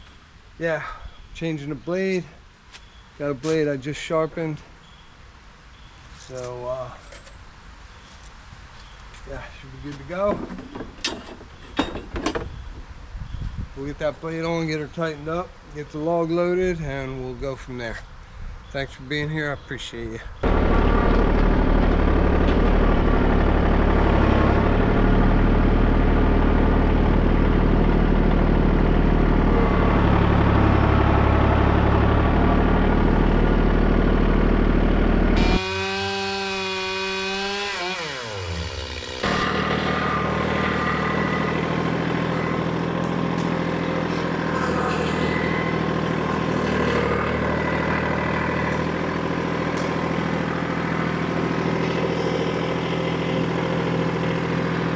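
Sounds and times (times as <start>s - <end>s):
different steady engine: 20.4s - 54.9s
engine running and slowing: 20.4s - 54.9s.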